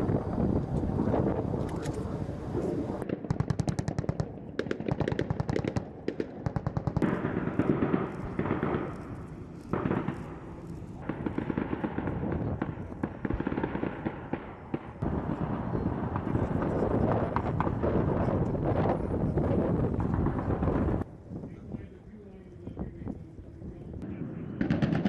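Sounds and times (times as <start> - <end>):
automatic gunfire: 3.0 - 18.4, 24.0 - 25.0
single gunshots: 4.6 - 18.0, 24.0 - 25.0
steady rumble: 7.7 - 21.1.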